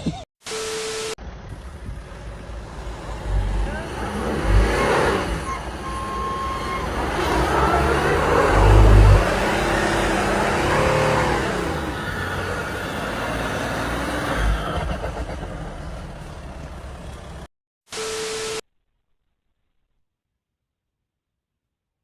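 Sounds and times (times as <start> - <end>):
motor vehicle low rumble: 1.2 - 17.5
steady beep: 18.0 - 18.6.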